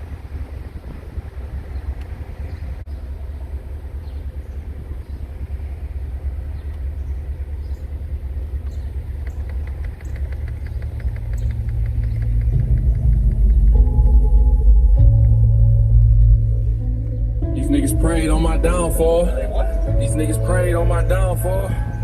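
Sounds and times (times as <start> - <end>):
car engine idling: 0.0 - 22.0
fast even ticking: 8.9 - 22.0.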